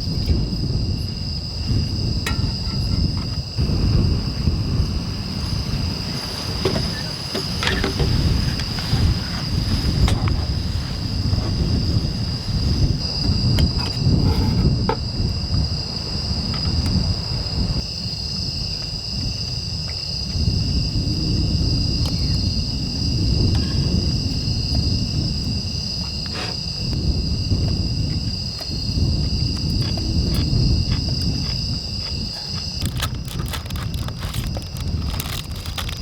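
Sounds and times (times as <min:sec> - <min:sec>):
crickets trilling: 0:00.0 - 0:36.0
wind: 0:00.0 - 0:36.0
waves: 0:04.0 - 0:14.2.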